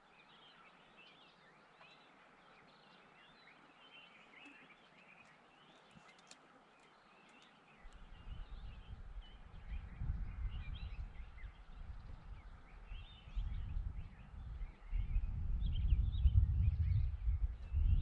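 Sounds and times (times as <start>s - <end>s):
small birds chirping: 0.0s - 18.0s
low gusty rumble: 8.0s - 18.0s.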